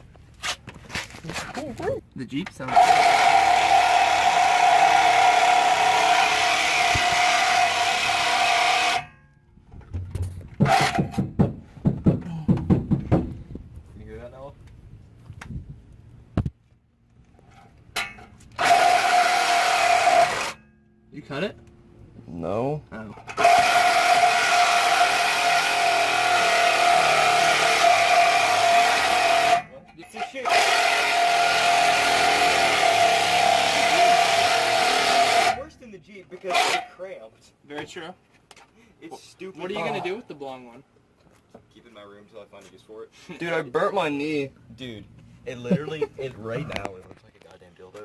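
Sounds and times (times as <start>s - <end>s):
power saw cutting metal pipe: 2.6s - 9.1s, 10.6s - 11.2s, 18.0s - 20.6s, 23.3s - 35.7s, 36.4s - 37.0s.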